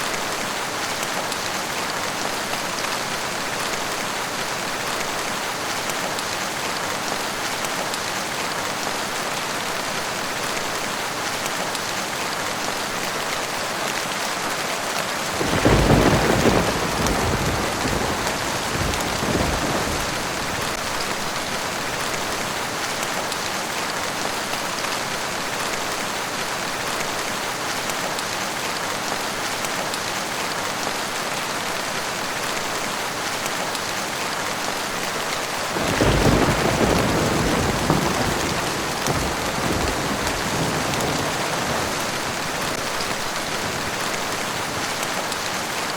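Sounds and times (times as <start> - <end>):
steady rainfall: 0.0 - 45.9
thunder clap rumbling: 15.3 - 20.8, 35.8 - 45.0.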